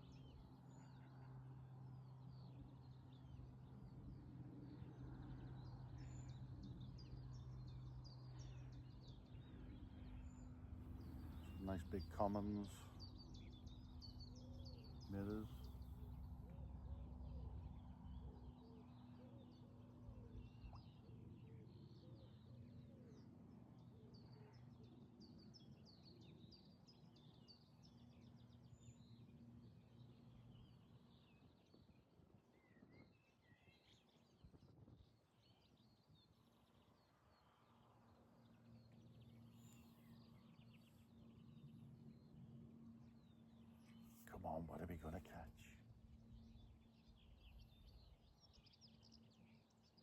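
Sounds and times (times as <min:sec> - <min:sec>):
steady low hum: 0:02.4 - 0:22.5
birds chirping: 0:05.2 - 0:16.6, 0:43.1 - 0:49.6.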